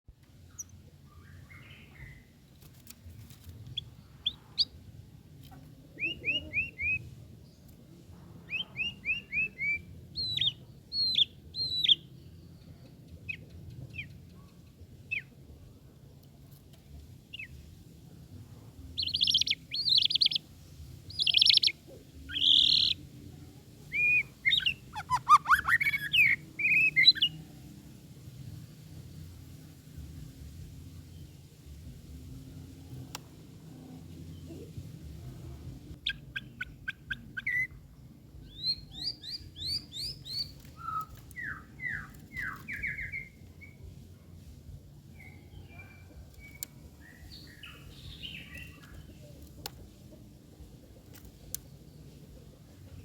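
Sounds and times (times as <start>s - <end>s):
songbird singing whistled song: 0.4s - 2.4s, 5.9s - 7.7s, 8.5s - 15.3s, 17.3s - 17.6s, 19.0s - 23.1s, 23.8s - 27.6s, 35.9s - 44.0s, 45.0s - 49.4s.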